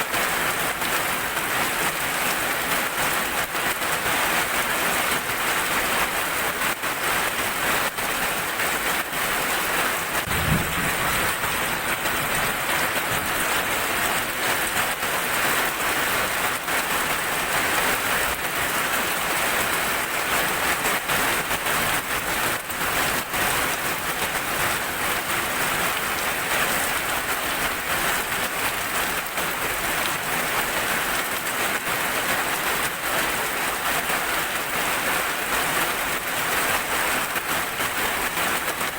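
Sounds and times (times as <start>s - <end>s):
heavy rain falling: 0.0s - 38.9s
low thump: 10.3s - 12.1s.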